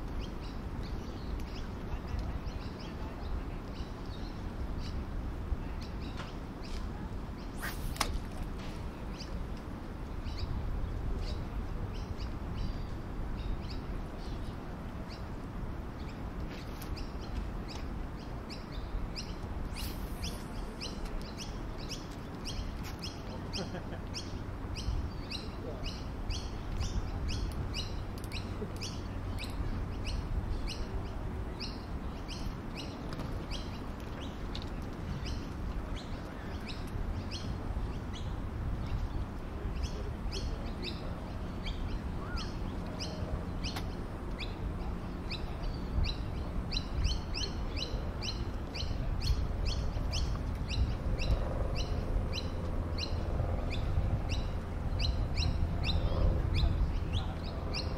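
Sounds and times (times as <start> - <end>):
small birds chirping: 16.0 - 57.9.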